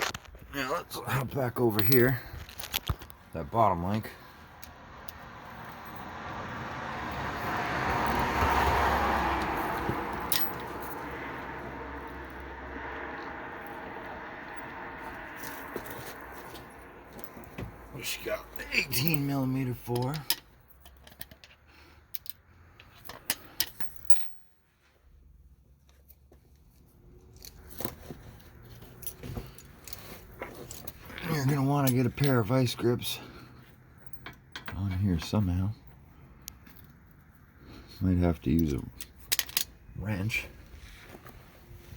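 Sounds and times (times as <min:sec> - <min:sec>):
metal hand tools clinking: 0:01.7 - 0:02.7, 0:10.3 - 0:11.0
vehicle passing: 0:03.4 - 0:20.2.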